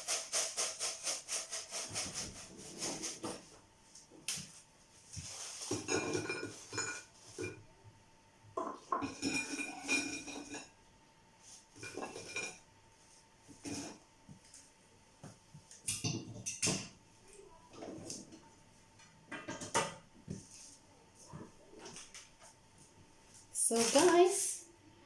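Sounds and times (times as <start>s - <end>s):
cutlery and dishes clinking: 5.6s - 7.6s, 8.7s - 10.7s.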